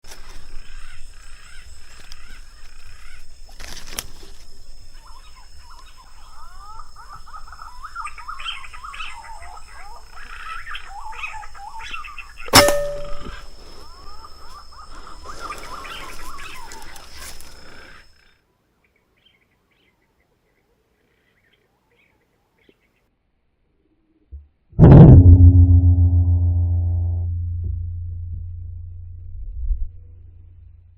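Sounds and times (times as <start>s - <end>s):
gunshot: 12.6s - 13.1s.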